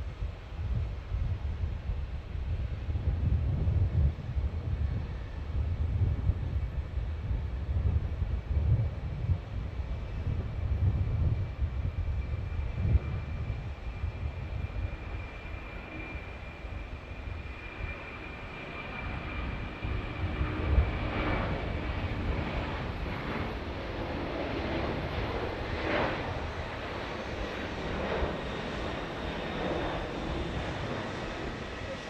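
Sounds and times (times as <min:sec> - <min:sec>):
jet engines whining: 0:11.9 - 0:32.0.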